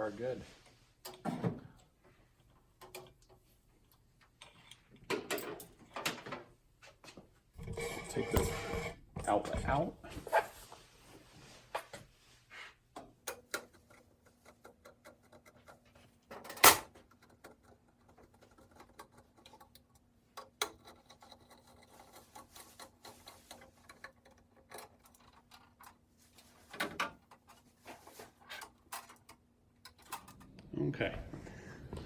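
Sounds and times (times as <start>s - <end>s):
small clicks and scrapes: 2.4s - 5.1s, 13.0s - 30.6s.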